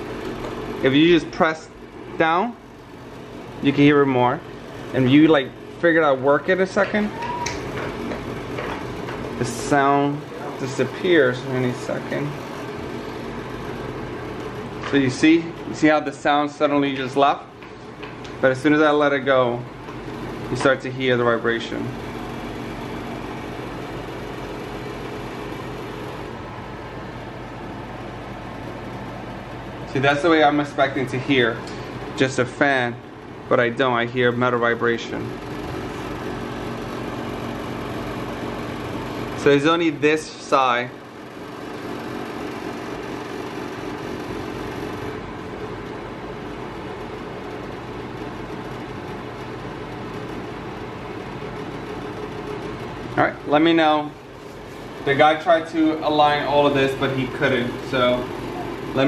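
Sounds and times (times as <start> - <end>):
blower fan humming: 0.0 - 59.0
metal housing vibration buzzing: 0.0 - 59.0.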